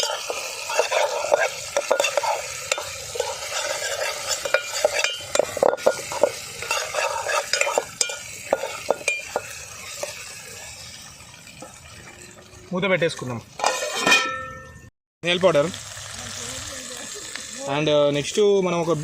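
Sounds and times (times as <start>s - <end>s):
spatula scraping a pan: 0.0s - 12.4s, 13.6s - 14.5s
meat sizzling in hot oil: 0.0s - 14.0s, 15.2s - 19.0s.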